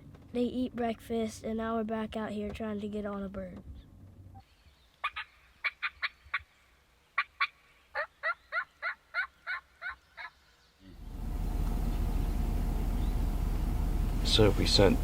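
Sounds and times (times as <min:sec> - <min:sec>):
wild turkey yelping: 0:05.0 - 0:06.5, 0:07.2 - 0:10.4.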